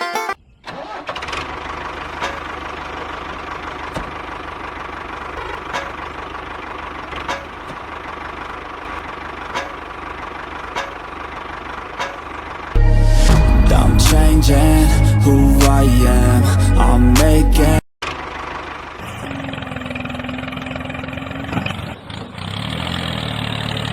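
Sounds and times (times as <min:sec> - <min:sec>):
small engine idling: 0:00.9 - 0:12.8, 0:18.0 - 0:23.9.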